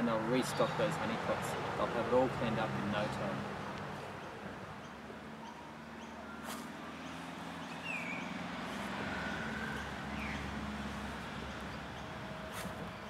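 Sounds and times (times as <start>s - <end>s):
whistled bird calls: 7.6s - 8.3s.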